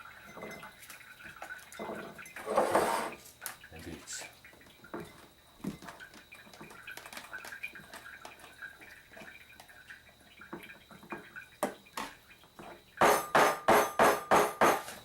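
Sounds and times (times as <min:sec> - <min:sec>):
sharp knocks: 0:13.0 - 0:14.9.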